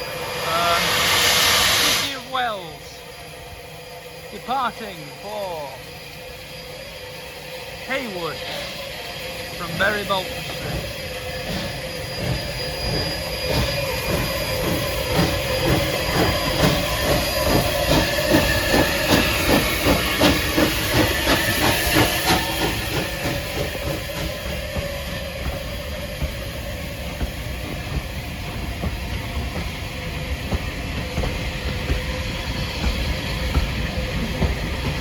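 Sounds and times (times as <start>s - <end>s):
steam hiss: 0.0s - 35.0s
steam locomotive exhaust beats: 0.0s - 35.0s.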